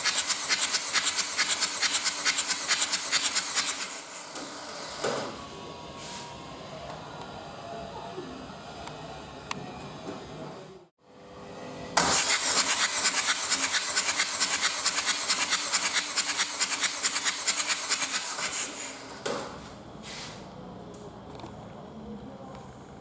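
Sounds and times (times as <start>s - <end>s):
diesel engine cranking on starter: 12.0s - 19.2s.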